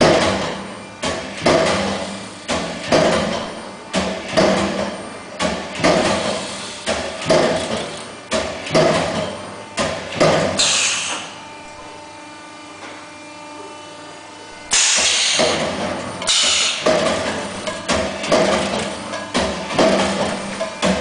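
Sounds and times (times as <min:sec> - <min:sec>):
die-cutting press knocking: 0:02.5 - 0:10.6, 0:14.7 - 0:21.0
hydraulic hiss: 0:10.6 - 0:11.4, 0:14.7 - 0:15.5, 0:16.3 - 0:16.8.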